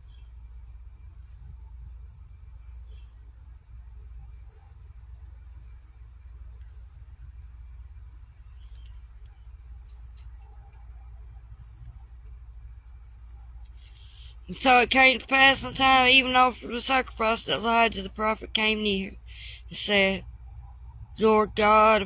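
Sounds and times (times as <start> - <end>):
insects droning: 0.0 - 22.0
low background hum: 0.0 - 22.0.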